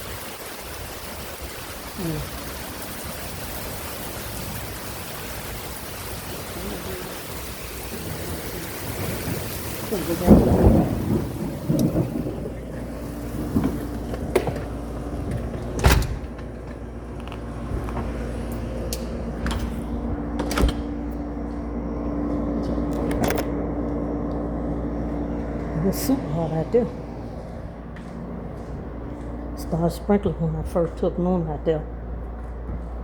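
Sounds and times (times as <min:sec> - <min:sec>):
rain falling: 0:00.0 - 0:20.2
steady low hum: 0:00.0 - 0:33.0
loud low rumble: 0:05.7 - 0:33.0.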